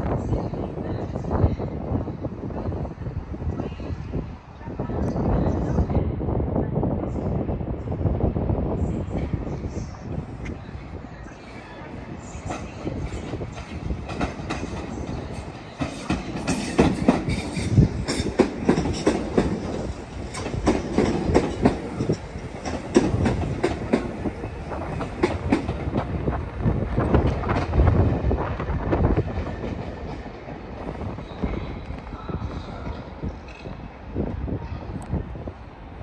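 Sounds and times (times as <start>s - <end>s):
low train rumble: 0.0s - 36.0s
train wheels clattering over rail joints: 12.4s - 26.4s.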